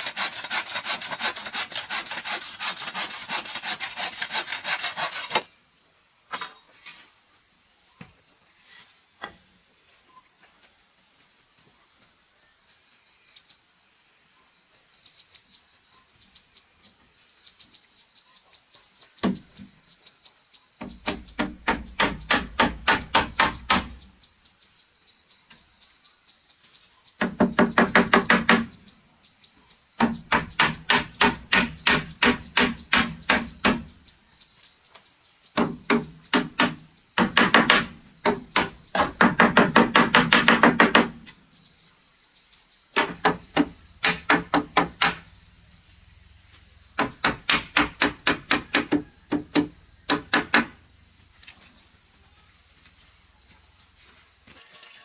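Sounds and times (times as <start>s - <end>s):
hand tool striking wood: 0.0s - 5.5s, 20.8s - 24.0s, 27.2s - 28.7s, 30.0s - 33.9s, 35.6s - 41.4s, 43.0s - 45.2s, 47.0s - 50.8s
insects buzzing: 0.0s - 55.0s.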